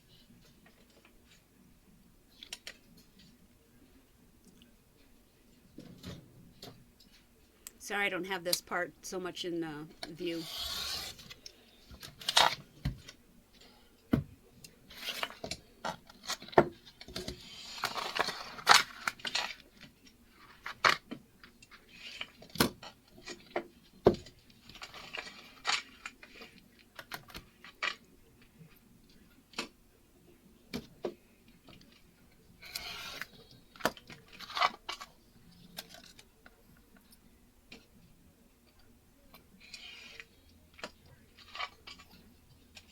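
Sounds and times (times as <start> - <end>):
vinyl sheet crinkling: 14.8 - 29.3, 31.6 - 36.9.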